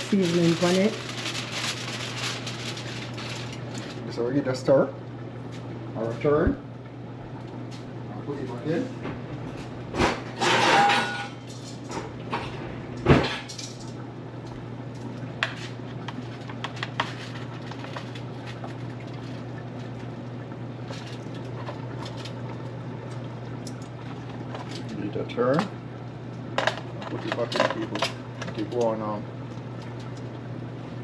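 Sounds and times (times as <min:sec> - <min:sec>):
steady low hum: 0:00.0 - 0:31.0
metal roasting pan scraping: 0:10.4 - 0:11.3.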